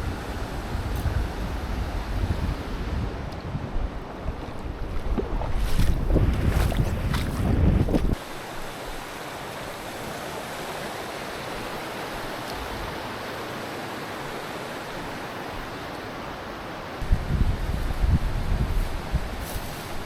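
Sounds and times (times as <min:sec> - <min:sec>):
wind buffeting microphone: 0:00.0 - 0:08.2, 0:17.0 - 0:20.0
stream water rushing: 0:00.0 - 0:20.0.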